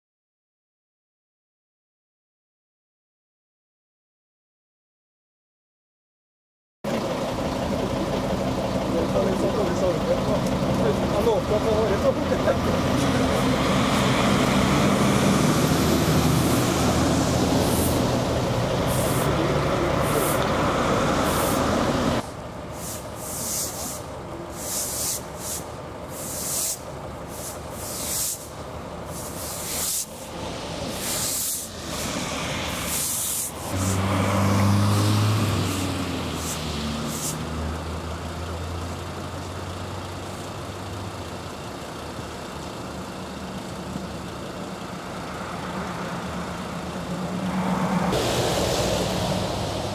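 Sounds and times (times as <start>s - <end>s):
large engine revving: 6.9s - 22.4s, 30.2s - 41.1s, 44.8s - 49.9s
heavy vehicle engines running: 6.9s - 49.9s
short sharp air hisses: 17.6s - 18.1s, 18.9s - 19.3s, 22.8s - 33.7s, 36.4s - 37.4s.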